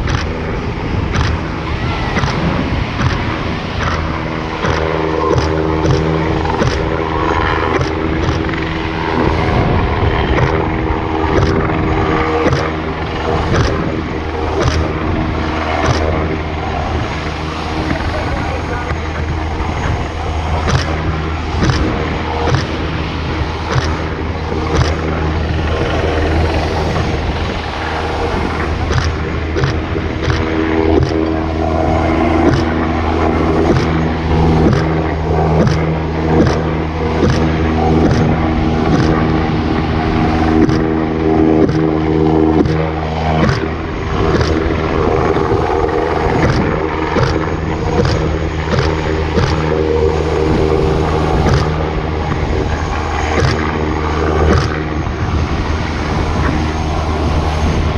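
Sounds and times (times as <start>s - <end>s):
sharp high ticks: 0.0s - 0.5s, 1.1s - 1.5s, 2.1s - 8.8s, 10.3s - 15.0s, 15.7s - 16.4s, 20.6s - 26.0s, 28.4s - 39.9s, 40.5s - 49.9s, 51.1s - 52.4s, 53.2s - 53.8s, 54.4s - 54.9s
helicopter engine and rotor hum: 0.0s - 57.9s.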